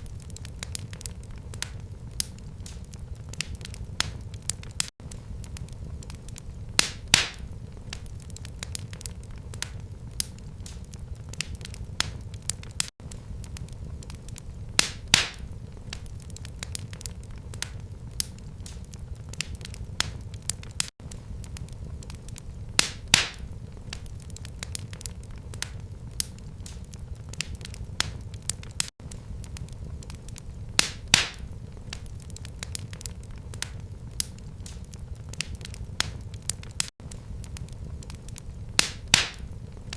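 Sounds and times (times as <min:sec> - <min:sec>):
low rumble of flames: 0:00.0 - 0:39.9
wood fire crackling and popping: 0:00.0 - 0:39.9.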